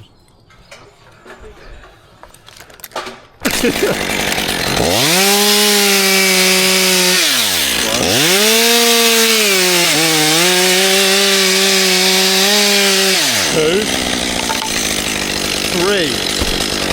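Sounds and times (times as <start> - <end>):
chainsaw cutting wood: 3.4 - 16.9.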